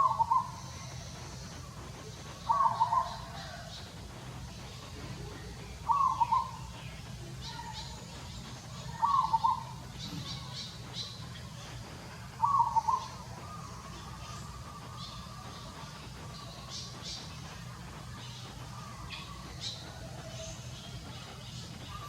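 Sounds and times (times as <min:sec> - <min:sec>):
faint high chirps: 0:00.0 - 0:22.0.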